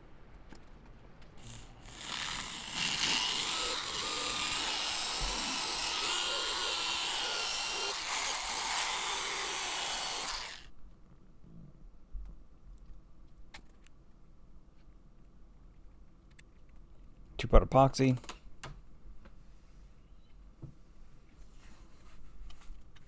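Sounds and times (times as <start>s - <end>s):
power tool grinding whine: 1.4s - 10.7s.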